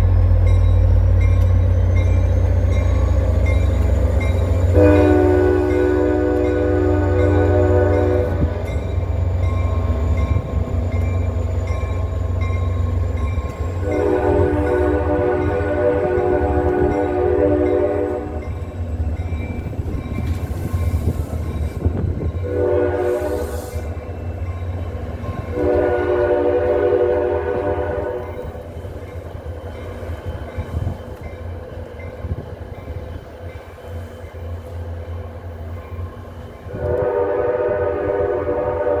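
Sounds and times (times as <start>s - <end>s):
train rumble: 0.0s - 39.0s
train horn chord: 4.6s - 8.7s, 13.7s - 18.6s, 22.4s - 23.9s, 25.4s - 28.5s, 36.7s - 39.0s.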